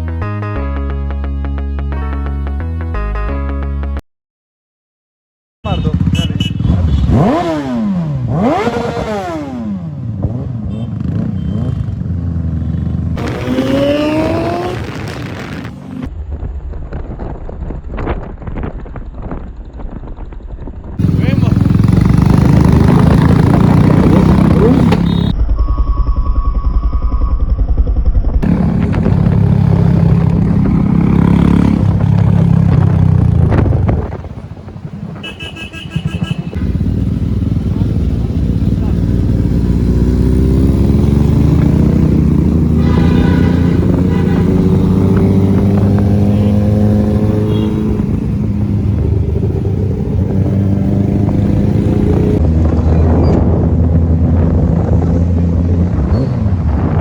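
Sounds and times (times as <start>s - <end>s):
motorcycle engine revving: 5.7s - 16.4s, 21.0s - 25.4s, 26.6s - 57.0s.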